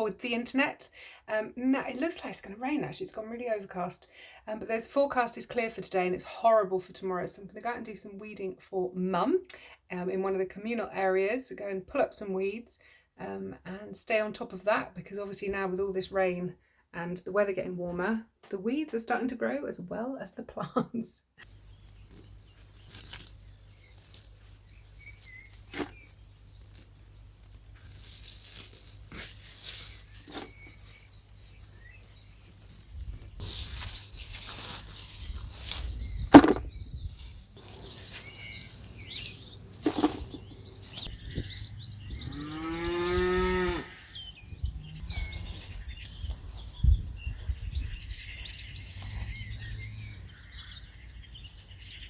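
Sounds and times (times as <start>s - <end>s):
rustling: 21.5s - 41.1s
knocks: 36.3s - 36.7s
cow mooing: 42.3s - 44.2s.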